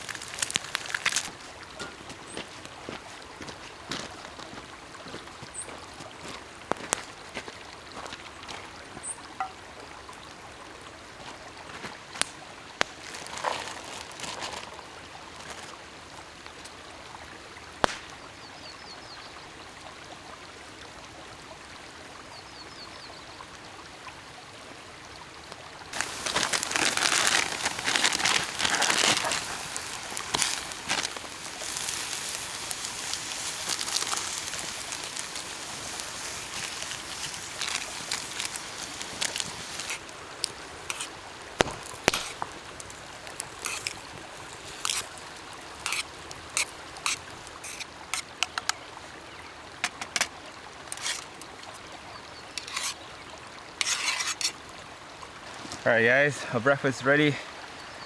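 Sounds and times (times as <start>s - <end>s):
faint crackles: 0.0s - 4.7s, 5.5s - 10.3s, 11.2s - 15.8s, 25.9s - 54.8s
loud sizzling: 26.0s - 48.6s.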